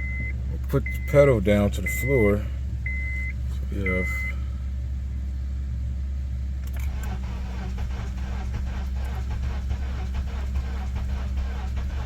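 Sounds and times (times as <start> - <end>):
steady low hum: 0.0 - 11.9
car engine cranking on starter: 6.6 - 12.0.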